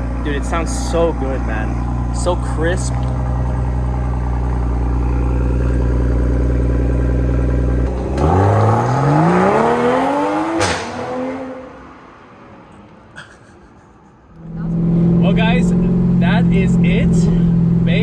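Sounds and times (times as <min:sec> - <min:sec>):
car exhaust accelerating: 0:00.0 - 0:11.9, 0:14.3 - 0:18.0.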